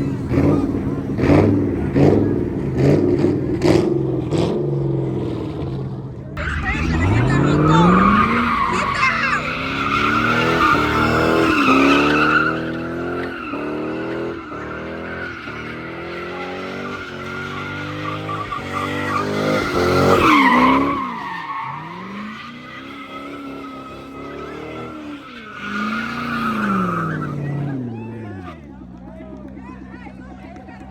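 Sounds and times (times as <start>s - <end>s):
car engine revving: 0.0s - 30.9s
tyres squealing: 6.4s - 28.2s.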